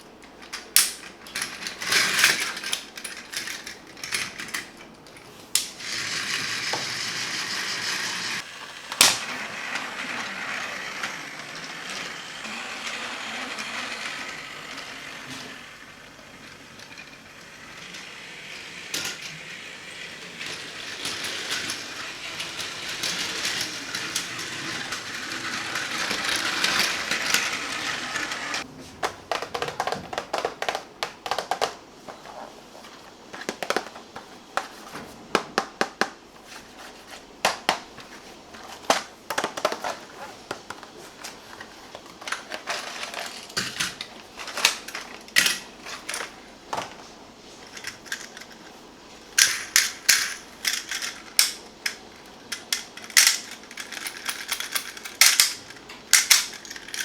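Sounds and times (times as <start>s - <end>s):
toy train motor whirring: 0.8s - 4.7s, 5.5s - 28.7s, 41.1s - 46.4s, 47.7s - 57.0s.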